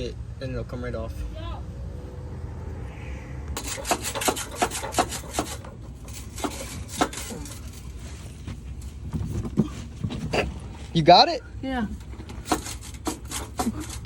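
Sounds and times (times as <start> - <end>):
low rumble: 0.8 - 4.2
hand tools clicking on metal: 3.6 - 7.8.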